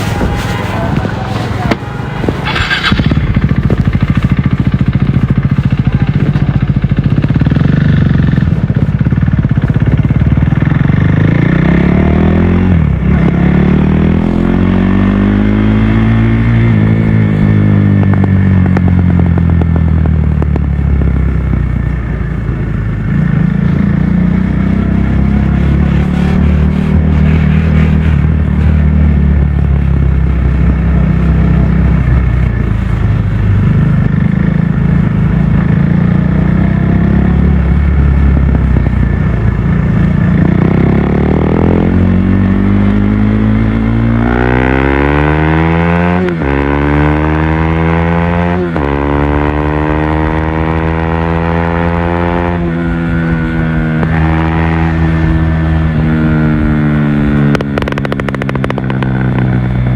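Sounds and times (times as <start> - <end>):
rushing noise: 0.0 - 7.5
motorcycle engine revving: 0.0 - 59.9.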